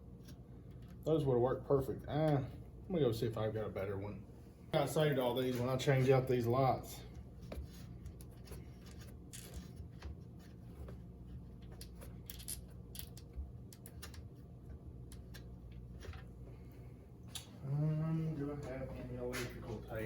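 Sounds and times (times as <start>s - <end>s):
steady low hum: 0.0s - 20.0s
small parts clicking and rattling: 11.6s - 14.2s.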